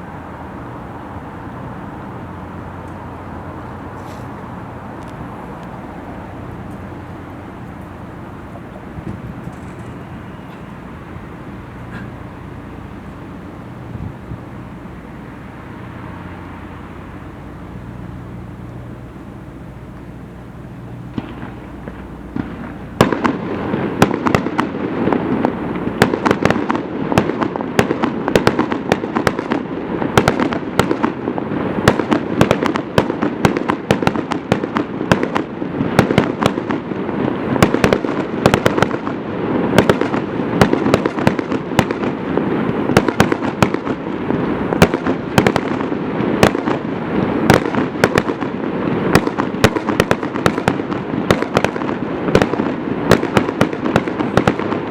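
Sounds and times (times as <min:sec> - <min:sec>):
low steady hum: 0:00.0 - 0:27.8
fireworks bangs and crackling: 0:00.0 - 0:54.9.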